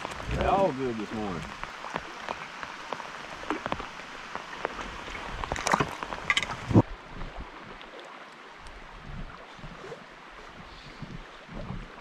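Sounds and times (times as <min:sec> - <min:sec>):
knocks and splashes: 0:00.0 - 0:06.9
rain pattering on wooden boat: 0:00.0 - 0:12.0
river water rushing: 0:00.0 - 0:12.0.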